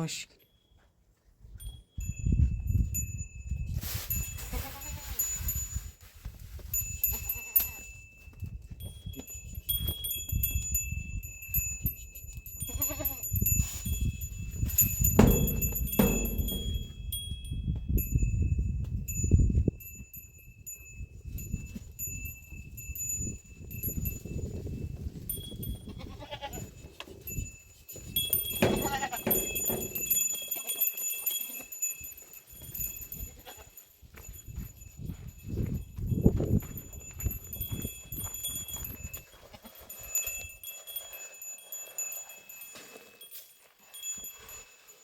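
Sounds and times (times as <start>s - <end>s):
steady high ringing tone: 6.8s - 24.6s, 27.3s - 45.0s.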